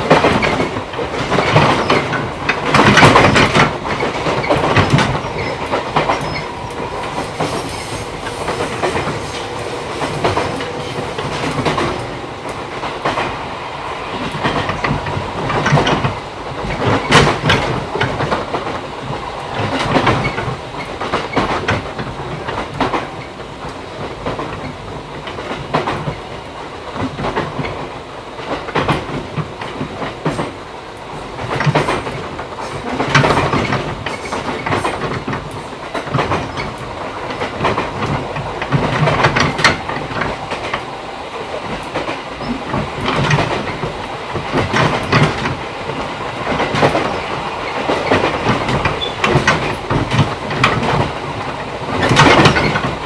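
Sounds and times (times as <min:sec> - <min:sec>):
train rumble: 0:00.0 - 0:53.0
wheels clattering over rail joints: 0:44.5 - 0:53.0.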